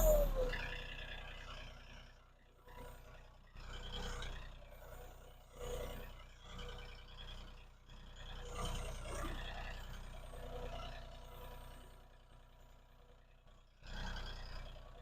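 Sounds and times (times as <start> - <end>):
tractor diesel engine running: 0.0 - 1.1.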